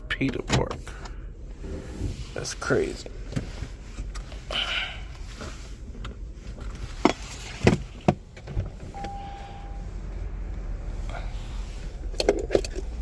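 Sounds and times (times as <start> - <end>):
clicks of car controls: 5.9 - 9.4
electronic beep: 9.0 - 9.8.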